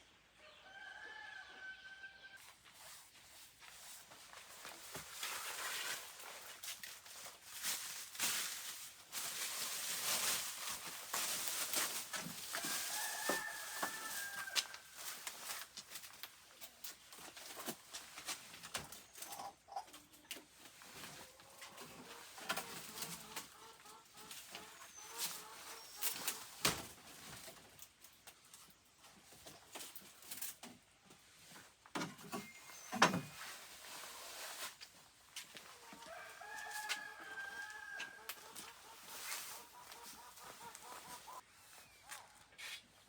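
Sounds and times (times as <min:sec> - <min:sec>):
rooster crowing: 0:00.5 - 0:02.4, 0:12.5 - 0:14.9, 0:35.9 - 0:38.3
chickens clucking: 0:18.8 - 0:27.4, 0:35.6 - 0:42.8.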